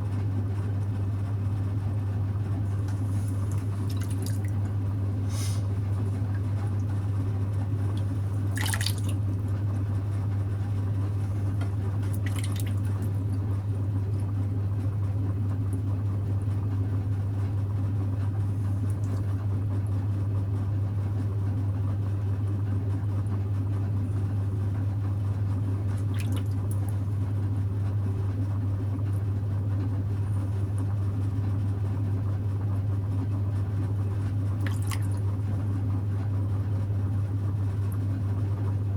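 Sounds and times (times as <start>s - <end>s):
potter's wheel humming: 0.0s - 38.9s
wet clay splats: 3.5s - 4.6s, 8.0s - 9.2s, 12.0s - 13.1s, 25.9s - 27.0s, 34.6s - 35.2s
wet clay squelching: 12.0s - 13.2s.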